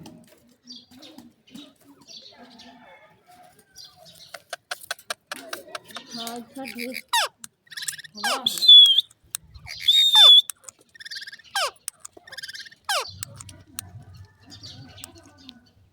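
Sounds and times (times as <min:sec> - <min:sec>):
parrot whistling and chattering: 0:04.3 - 0:13.9.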